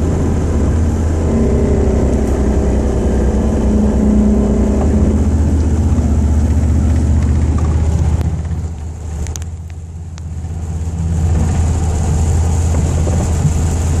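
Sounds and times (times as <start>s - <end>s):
engine and road drone: 0.0s - 14.0s.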